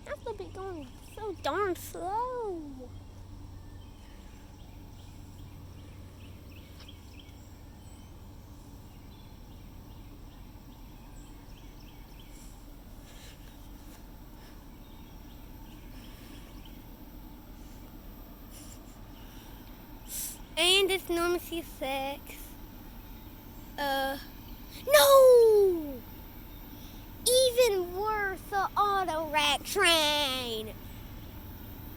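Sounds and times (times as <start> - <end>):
diesel locomotive rumble: 13.7 - 31.9.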